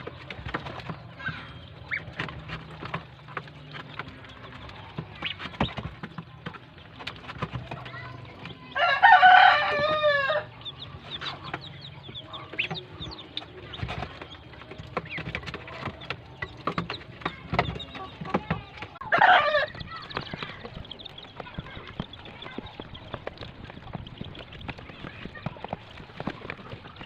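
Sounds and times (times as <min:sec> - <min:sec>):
rooster crowing: 0:08.8 - 0:10.5, 0:19.0 - 0:19.7.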